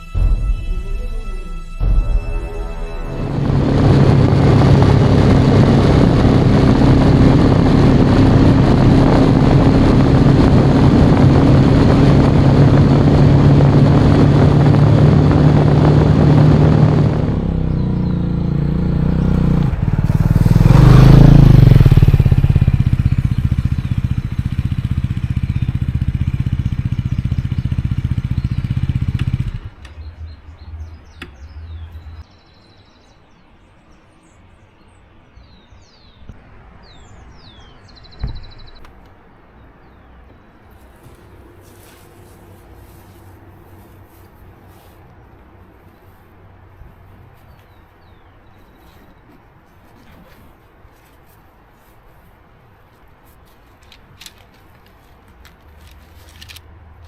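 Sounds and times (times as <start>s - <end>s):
rushing noise: 0.0s - 25.4s
motorcycle engine running: 2.6s - 32.2s
bird chirps: 17.6s - 18.9s, 29.8s - 39.0s.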